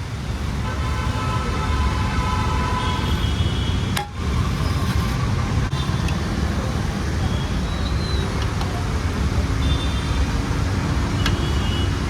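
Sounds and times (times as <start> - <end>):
road traffic: 0.0 - 12.0
vehicle horn: 0.6 - 3.8.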